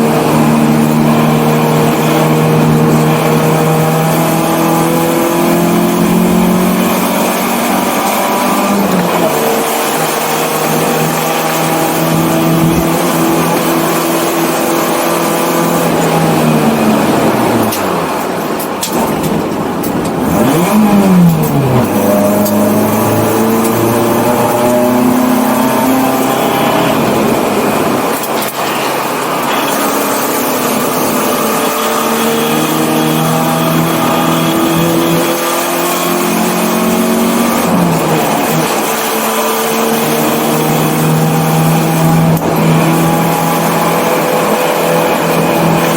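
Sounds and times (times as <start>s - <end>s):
race car engine revving: 0.0s - 45.9s.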